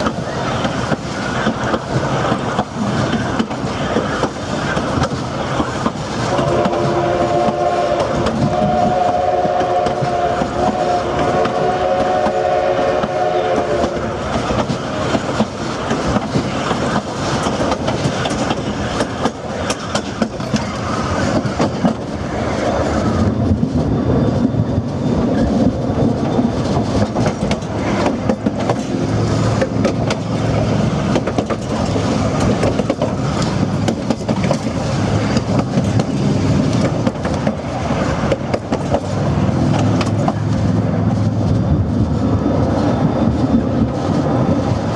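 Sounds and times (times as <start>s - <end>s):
train wheels rattling on rails: 0.0s - 44.9s
steam whistle chord: 6.3s - 14.2s.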